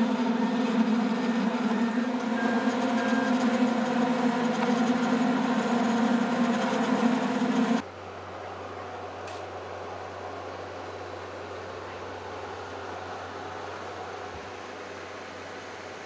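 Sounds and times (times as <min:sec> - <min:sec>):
diesel engine and hydraulic drone: 0:00.0 - 0:16.0.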